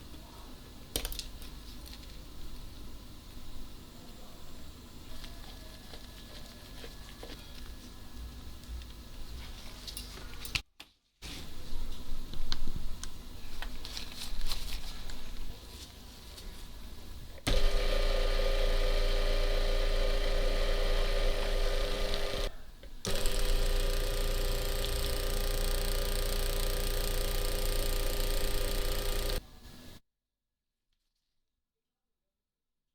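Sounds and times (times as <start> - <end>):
electric machine hum: 17.5 - 29.6.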